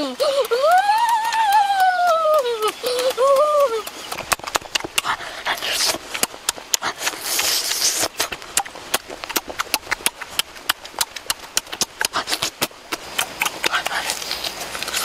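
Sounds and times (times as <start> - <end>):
person chewing meat wetly: 0.0 - 15.0
rasping chewing: 0.0 - 15.0.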